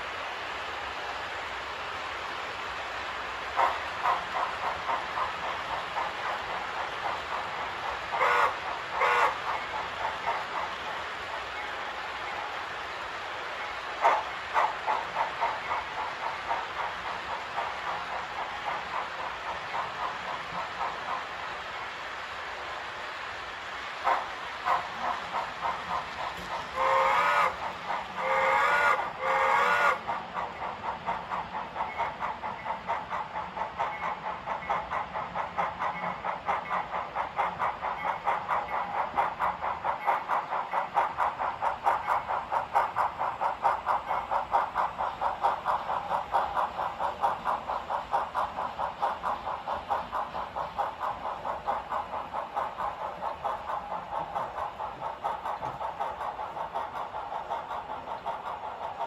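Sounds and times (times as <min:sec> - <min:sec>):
model train engine drone: 0:00.0 - 0:59.0
wheels clicking over rail joints: 0:24.0 - 0:59.0.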